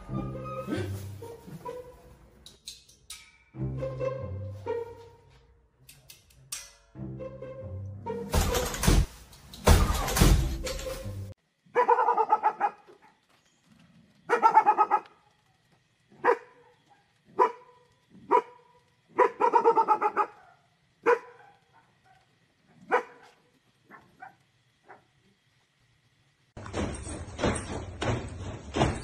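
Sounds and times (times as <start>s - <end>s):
dog barking: 11.7s - 13.2s, 14.3s - 15.2s, 16.2s - 25.1s.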